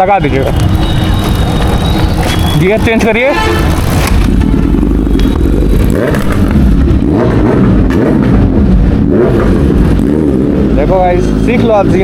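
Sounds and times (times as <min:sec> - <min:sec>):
motorcycle engine running and revving: 0:00.0 - 0:12.0.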